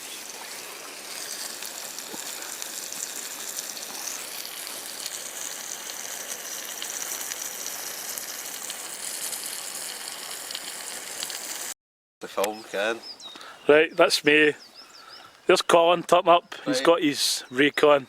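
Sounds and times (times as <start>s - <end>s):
burgers sizzling and crackling: 0.0s - 11.8s.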